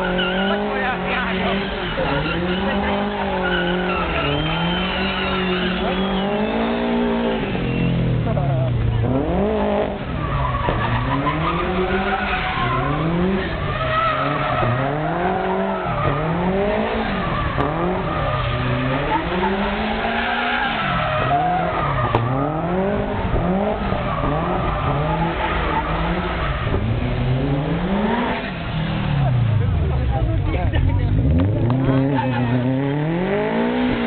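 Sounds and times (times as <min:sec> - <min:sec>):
tyres squealing: 0:00.0 - 0:08.3, 0:10.0 - 0:27.1
car engine revving: 0:00.0 - 0:34.0.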